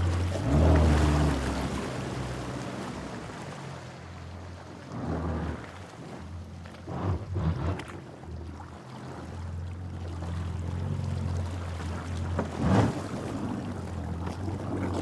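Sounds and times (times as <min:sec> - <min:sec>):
creek water running: 0:00.0 - 0:15.0.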